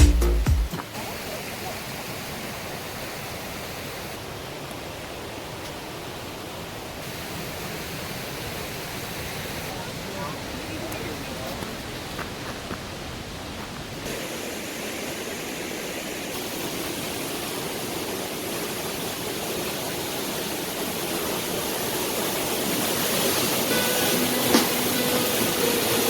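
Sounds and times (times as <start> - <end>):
background music: 0.0 - 0.8, 23.6 - 26.0
waterfall rushing: 0.1 - 26.0.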